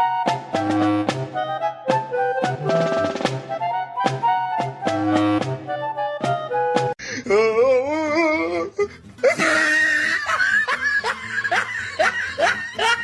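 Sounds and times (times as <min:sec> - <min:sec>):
music notes: 0:00.0 - 0:07.0
wheezy laughter: 0:09.2 - 0:13.0.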